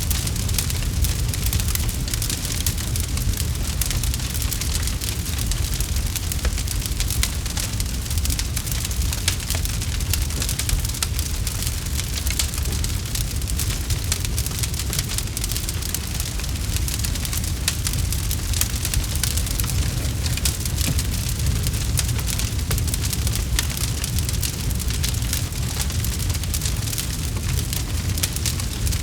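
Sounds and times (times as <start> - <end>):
campfire crackling: 0.0 - 29.0.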